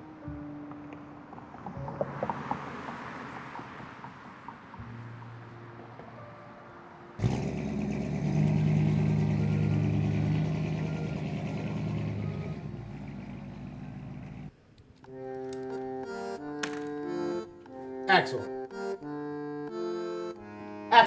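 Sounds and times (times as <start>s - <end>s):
car engine driving off: 7.2s - 14.5s
accordion music: 8.9s - 12.8s, 15.0s - 21.0s.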